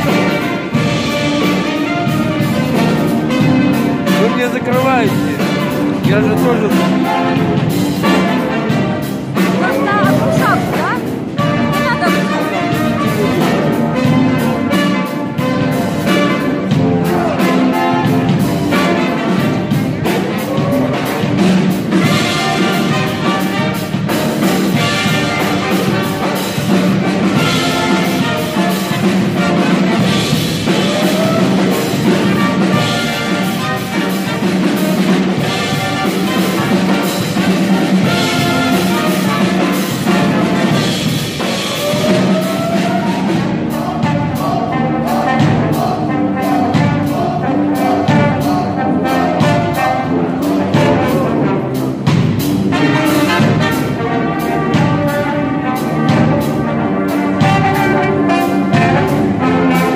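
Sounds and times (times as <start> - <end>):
brass band playing: 0.0 - 59.9
steady drum beat: 0.0 - 59.9.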